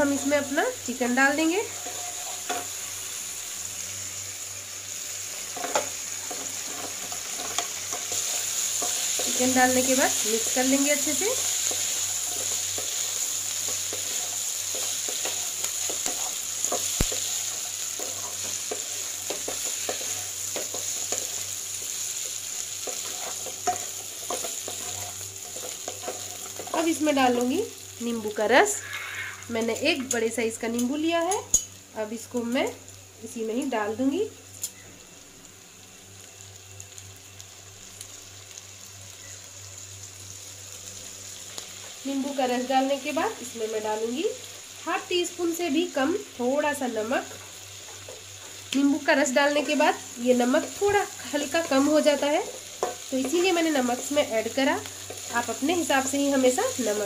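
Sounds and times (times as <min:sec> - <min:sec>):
chicken sizzling in a pan: 0:00.0 - 0:57.0
spatula scraping and tapping pan: 0:05.6 - 0:09.5, 0:11.6 - 0:21.9, 0:22.8 - 0:27.0, 0:52.4 - 0:54.1.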